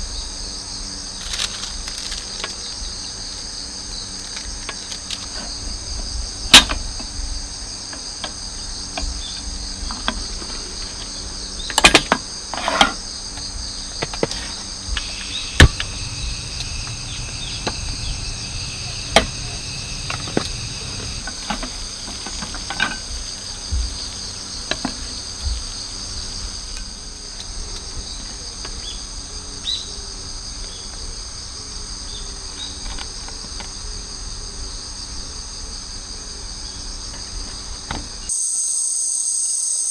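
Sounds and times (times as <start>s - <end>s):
crickets trilling: 0.0s - 39.9s
campfire crackling: 14.2s - 28.0s.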